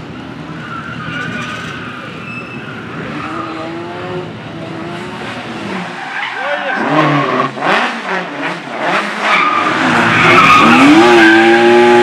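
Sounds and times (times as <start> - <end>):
car engine revving: 2.8 - 12.0.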